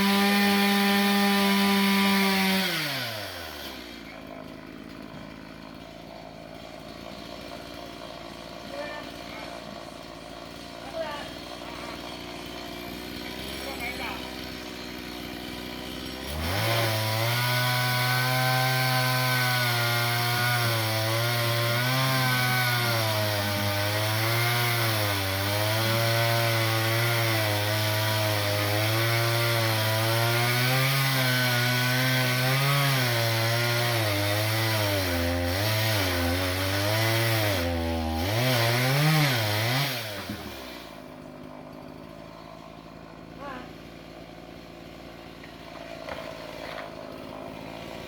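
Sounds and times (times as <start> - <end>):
chainsaw cutting wood: 0.0 - 48.0.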